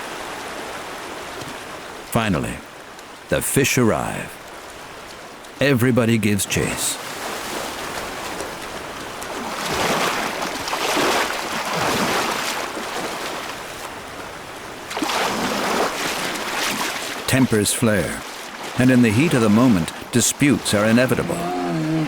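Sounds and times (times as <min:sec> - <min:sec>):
river water rushing: 0:00.0 - 0:22.0
heavy splashing: 0:05.6 - 0:14.2, 0:14.8 - 0:22.0.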